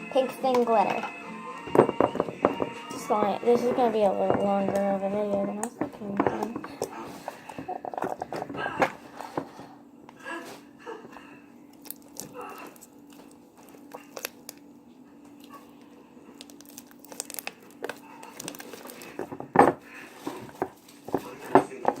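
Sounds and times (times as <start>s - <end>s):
faint steady hum: 0.0s - 22.0s
hands handling crinkly craft materials: 11.8s - 14.6s, 16.3s - 19.4s.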